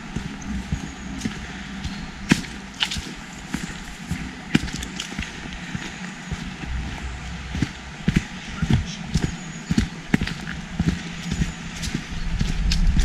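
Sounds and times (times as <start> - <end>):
footsteps on woodland path: 0.0 - 13.0
steady outdoor hiss: 0.0 - 13.0.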